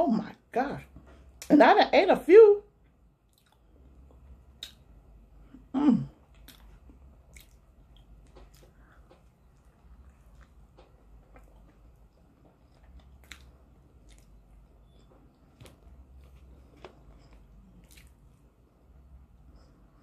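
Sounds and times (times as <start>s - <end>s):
person biting and chewing: 6.3s - 8.9s, 12.6s - 18.3s.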